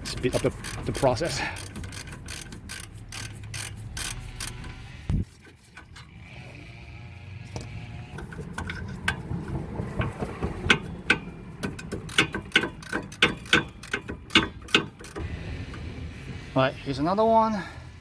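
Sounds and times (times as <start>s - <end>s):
ratchet wrench clicking: 0.0s - 4.8s, 10.7s - 15.2s.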